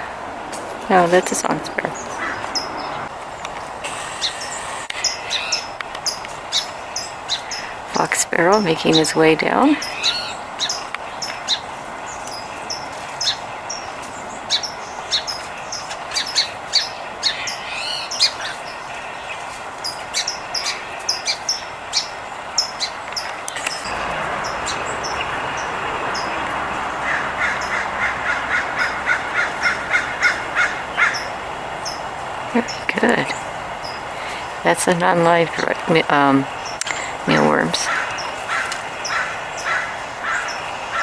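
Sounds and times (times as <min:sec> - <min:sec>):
steady rushing noise: 0:00.0 - 0:05.0, 0:23.5 - 0:40.9
harsh low bird calls: 0:00.0 - 0:08.0, 0:20.1 - 0:41.0
sparrows chirping: 0:00.0 - 0:41.0.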